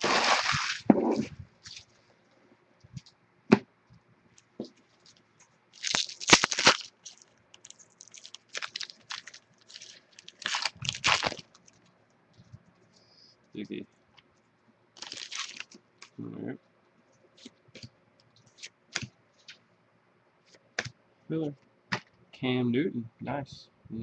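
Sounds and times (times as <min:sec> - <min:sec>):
foil pack tearing and crinkling: 0:05.8 - 0:11.8, 0:15.0 - 0:15.8.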